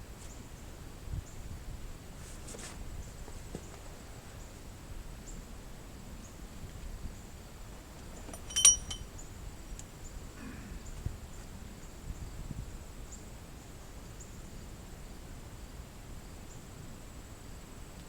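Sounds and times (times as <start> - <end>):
sharp metallic clink: 8.3 - 9.0.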